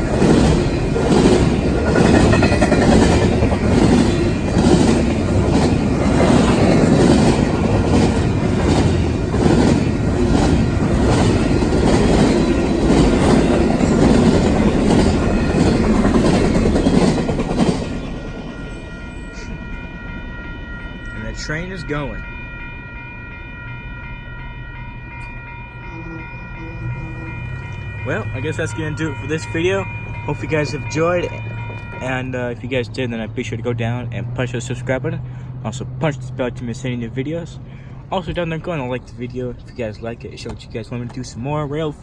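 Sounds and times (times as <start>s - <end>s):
wheels clacking over rail joints: 0.0s - 18.8s
freight train rumbling past: 0.0s - 42.0s.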